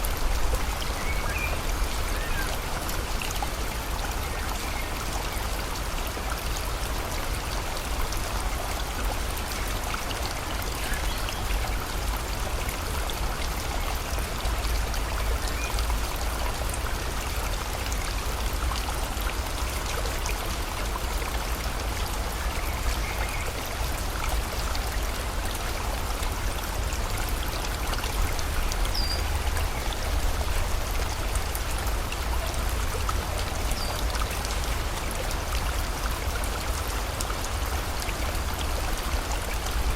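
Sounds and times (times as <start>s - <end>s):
rain: 0.0s - 39.9s.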